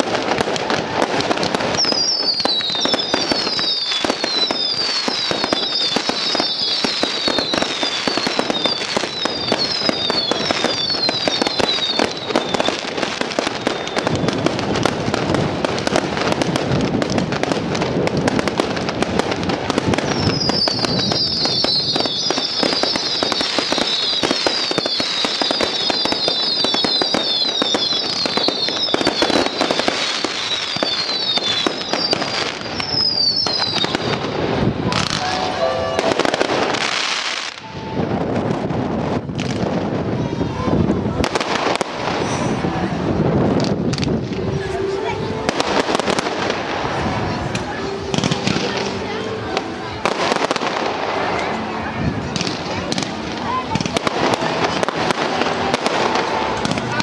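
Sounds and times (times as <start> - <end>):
firework bangs and crackling: 0.0 - 57.0
firework whistles falling in pitch: 1.7 - 14.4, 20.0 - 34.2.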